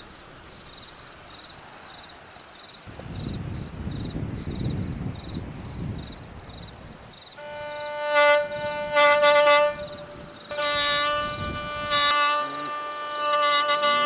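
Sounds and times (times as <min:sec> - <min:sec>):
low rumbling: 0:02.9 - 0:14.0
reedy instrument over drone: 0:07.4 - 0:14.0.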